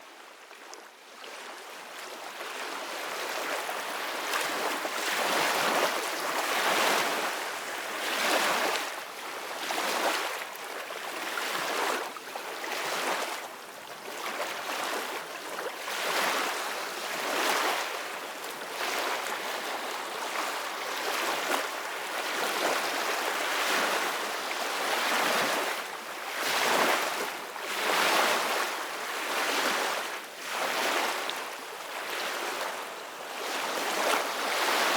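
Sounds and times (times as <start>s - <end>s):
ocean waves breaking on shore: 2.5s - 13.4s, 14.1s - 34.9s.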